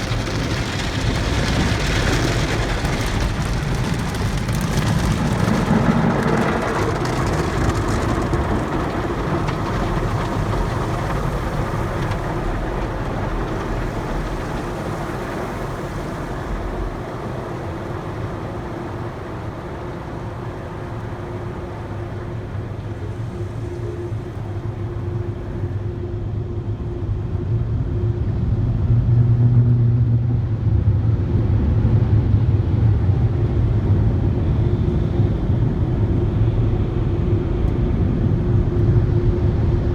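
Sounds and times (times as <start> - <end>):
car wash equipment whooshing: 0.0 - 26.9
constant hum: 0.0 - 39.9.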